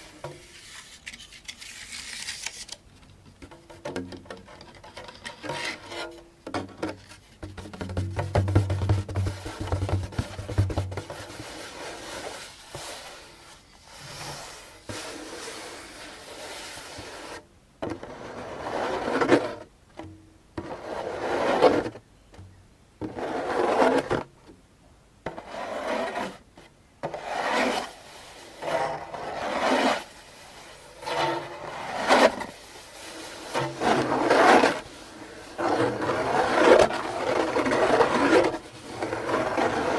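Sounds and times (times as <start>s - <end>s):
hand rubbing a drum: 4.7s - 17.4s.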